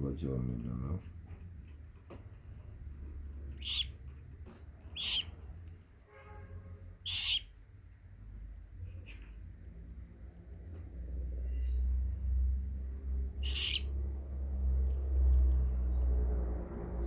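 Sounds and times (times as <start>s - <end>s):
parakeet chick squeaking: 3.4s - 4.1s, 4.8s - 5.5s, 7.0s - 7.6s, 13.3s - 14.0s.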